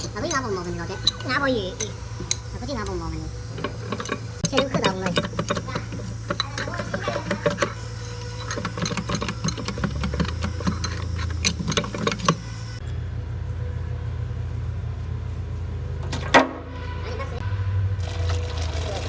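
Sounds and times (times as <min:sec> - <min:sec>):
sharp clicks and knocks: 0:00.0 - 0:12.6
wheel loader engine running: 0:00.0 - 0:19.0.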